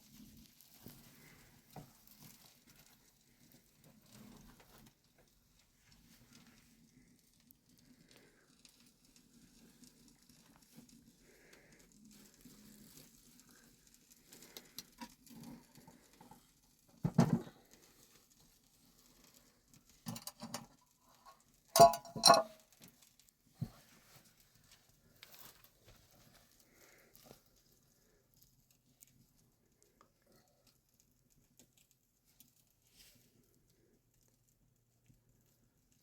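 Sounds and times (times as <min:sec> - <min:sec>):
sharp knocks and clatters: 0:17.0 - 0:17.5.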